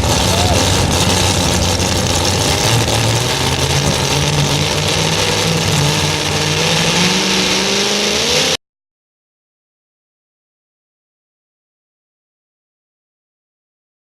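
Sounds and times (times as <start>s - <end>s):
tractor engine running loud: 0.0s - 8.6s.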